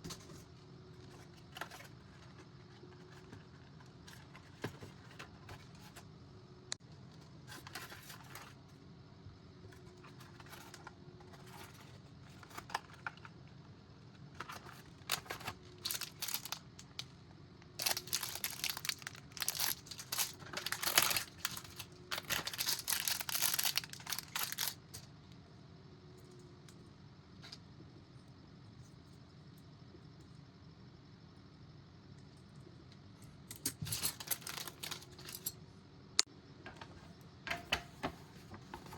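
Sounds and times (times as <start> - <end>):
plastic packaging crinkling: 14.4 - 17.0, 17.8 - 25.0, 34.0 - 35.4.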